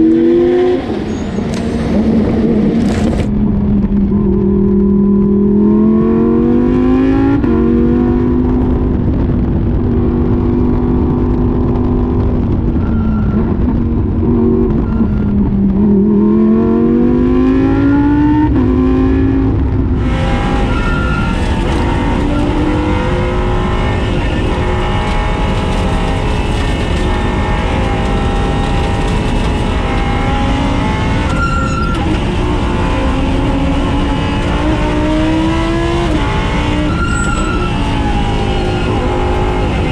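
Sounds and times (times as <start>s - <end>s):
race car engine revving: 13.6s - 39.9s.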